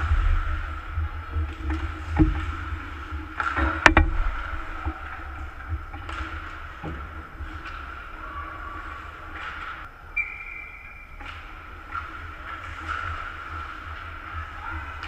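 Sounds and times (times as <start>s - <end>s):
arena noise rumble: 0.0s - 15.0s
hockey sticks clacking puck: 11.2s - 14.1s.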